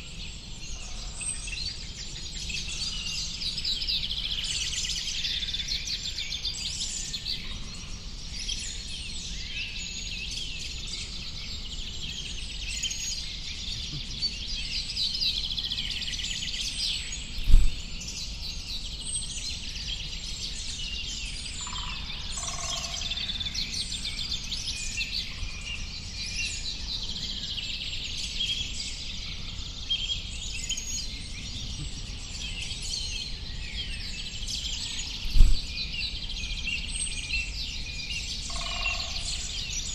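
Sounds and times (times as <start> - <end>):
low thump: 17.4 - 17.9, 35.3 - 35.7.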